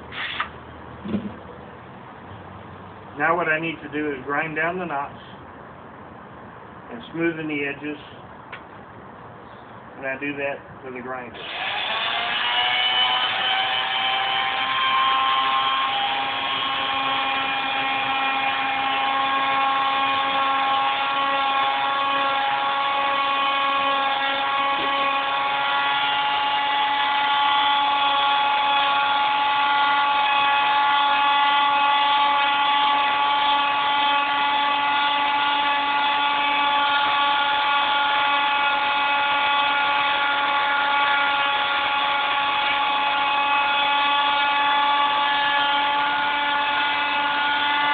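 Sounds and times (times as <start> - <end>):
electric grinder whining on wood: 11.4 - 47.9.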